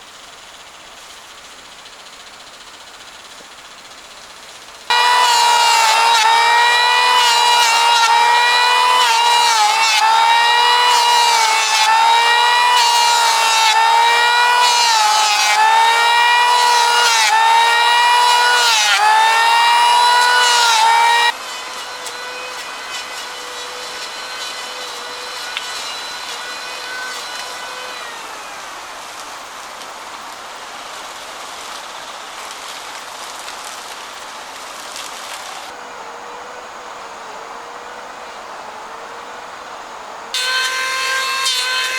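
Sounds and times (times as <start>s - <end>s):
power tool cutting wood: 4.9s - 29.2s, 40.3s - 41.9s.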